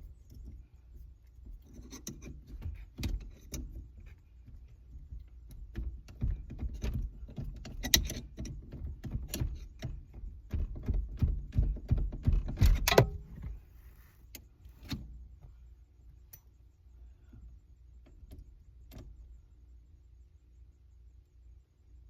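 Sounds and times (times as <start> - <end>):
metallic clicking and rattling: 1.3 - 13.5.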